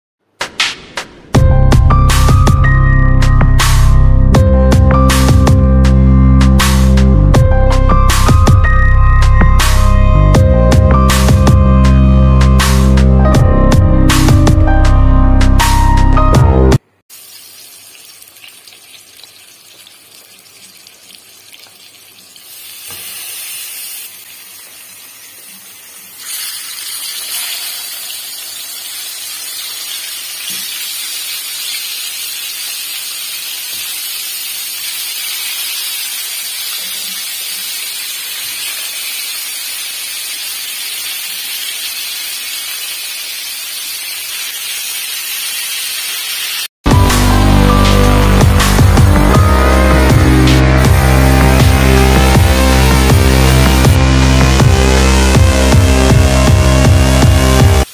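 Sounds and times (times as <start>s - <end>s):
fish sizzling in hot oil: 17.1s - 46.7s.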